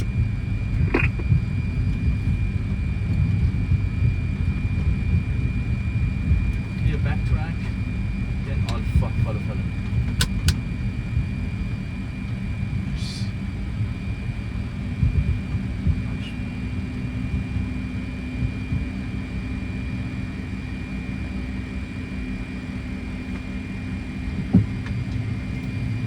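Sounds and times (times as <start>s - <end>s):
high whine: 0.0s - 17.6s
jet engine rumble: 0.0s - 26.0s.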